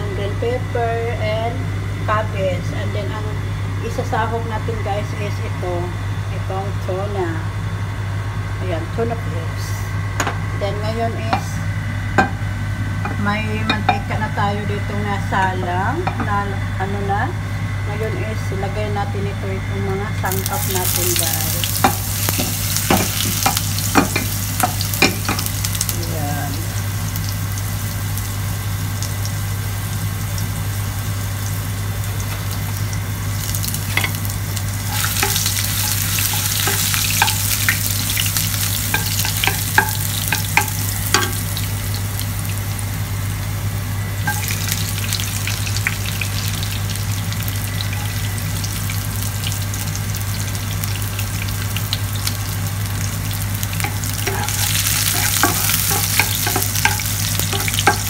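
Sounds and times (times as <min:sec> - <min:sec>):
ginger sizzling in hot oil: 0:20.2 - 0:58.0.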